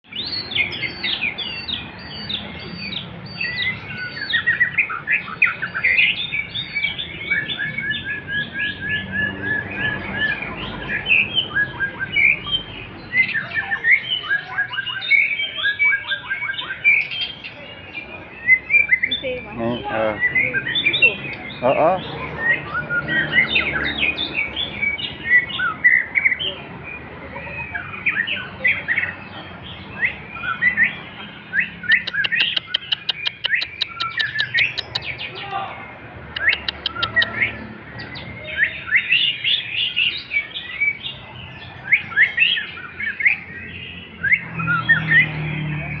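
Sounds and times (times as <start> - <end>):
bird singing whistled phrases: 11.0 - 17.4, 29.8 - 35.5, 36.3 - 41.0, 41.8 - 45.4
bird rattling ticks: 32.0 - 35.0.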